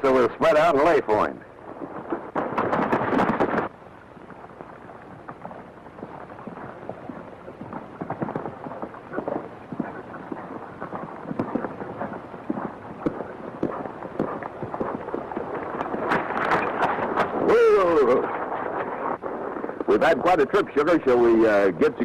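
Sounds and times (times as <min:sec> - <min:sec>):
horse hoofbeats: 0:00.0 - 0:22.0.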